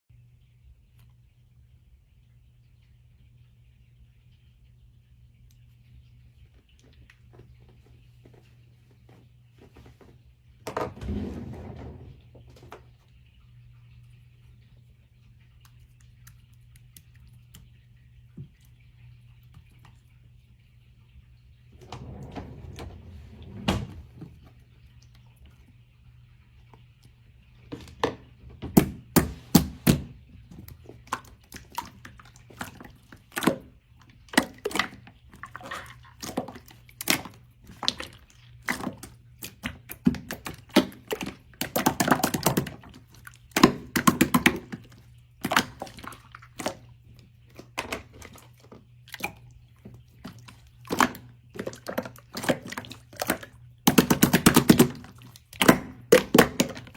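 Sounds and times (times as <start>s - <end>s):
faint steady hum: 0.1s - 56.9s.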